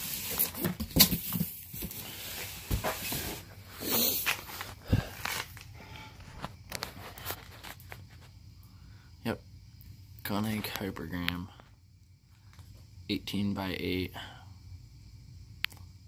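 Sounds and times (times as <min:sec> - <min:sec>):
cardboard box rustling: 0:00.0 - 0:03.6.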